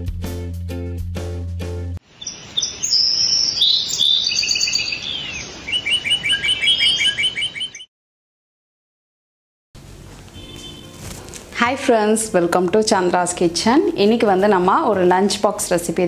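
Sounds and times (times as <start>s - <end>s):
faint outdoor hiss: 2.0s - 7.1s, 9.8s - 16.0s
birds chirping: 2.1s - 7.9s.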